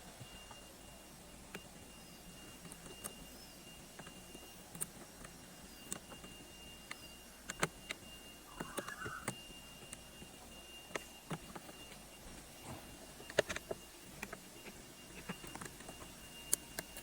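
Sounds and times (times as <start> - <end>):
faint high whine: 0.0 - 17.0
small parts and tools clicking: 2.5 - 12.1, 13.1 - 17.0.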